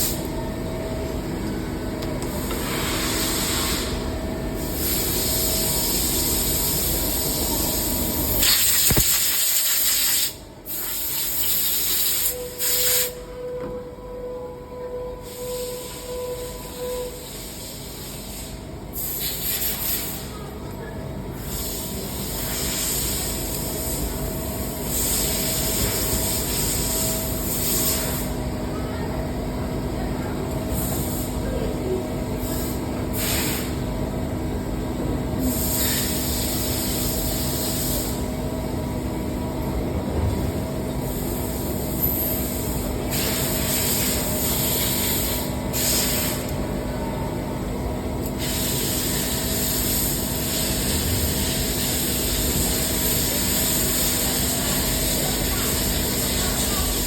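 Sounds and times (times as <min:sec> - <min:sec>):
machinery humming: 0:00.0 - 0:09.1.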